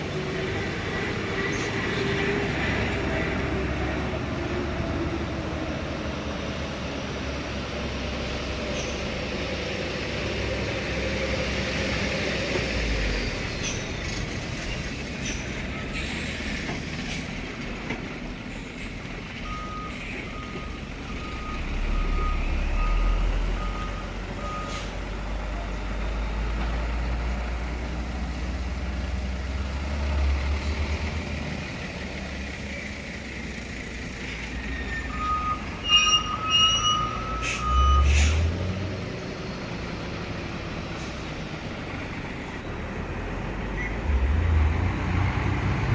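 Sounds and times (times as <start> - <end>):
heavy truck engines rumbling: 0.0 - 45.9
reversing alarm beeps: 19.4 - 25.0, 34.8 - 38.2.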